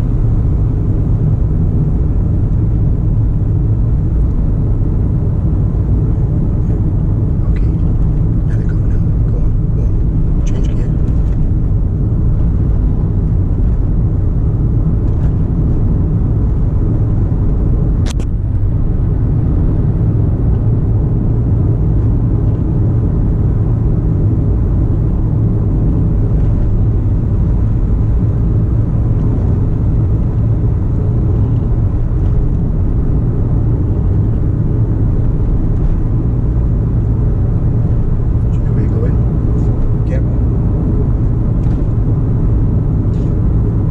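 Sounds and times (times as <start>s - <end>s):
car engine and road noise: 0.0s - 43.9s
sharp click: 18.0s - 18.3s.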